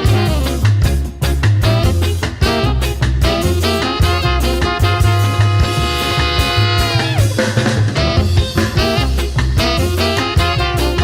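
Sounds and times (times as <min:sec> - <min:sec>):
steady drum beat: 0:00.0 - 0:11.0
upbeat swing music: 0:00.0 - 0:11.0.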